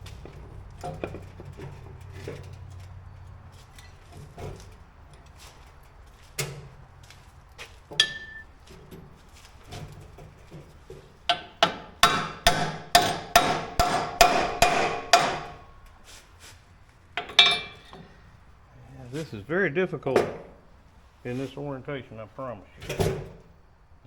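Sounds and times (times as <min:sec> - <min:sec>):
hammer striking steel: 0:08.0 - 0:08.5, 0:11.3 - 0:15.7, 0:17.2 - 0:17.9.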